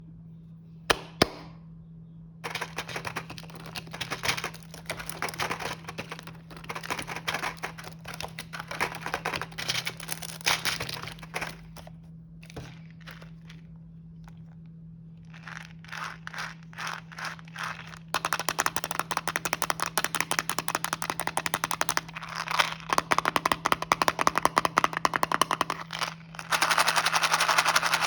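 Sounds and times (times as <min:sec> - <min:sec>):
snack packaging crinkling: 0:02.4 - 0:28.0.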